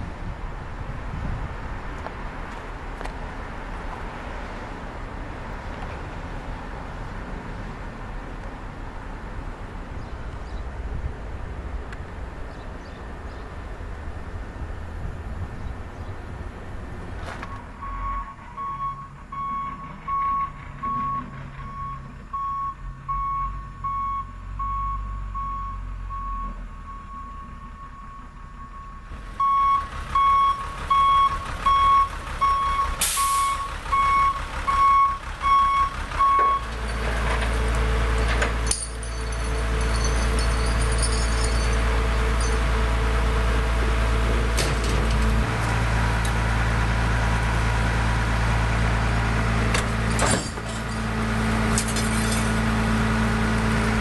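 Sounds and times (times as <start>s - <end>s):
truck engine running: 6.0s - 54.0s
truck reversing alarm beeping: 17.4s - 43.3s.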